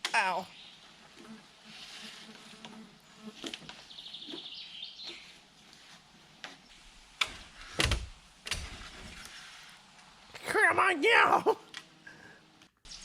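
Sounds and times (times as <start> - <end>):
bird trilling chirp: 3.9 - 5.4.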